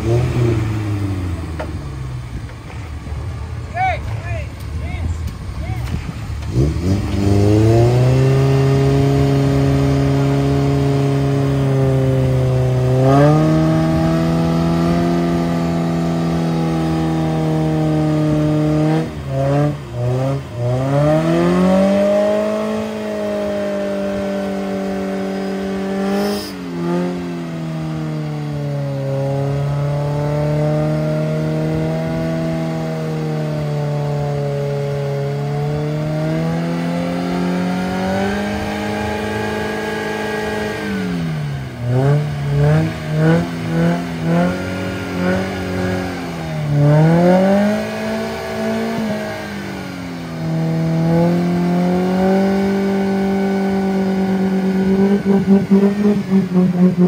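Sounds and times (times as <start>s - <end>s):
engine revving hard: 0.0s - 1.6s, 5.6s - 57.0s.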